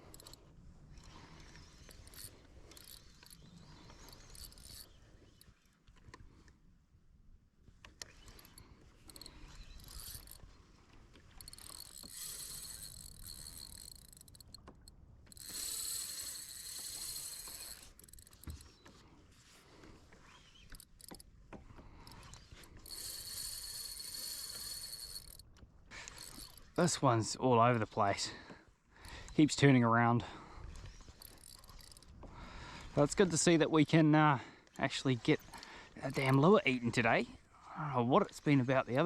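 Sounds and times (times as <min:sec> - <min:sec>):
fishing reel drag buzzing: 0:00.0 - 0:05.7, 0:08.0 - 0:19.0, 0:20.1 - 0:21.2, 0:21.9 - 0:26.8, 0:30.5 - 0:33.0.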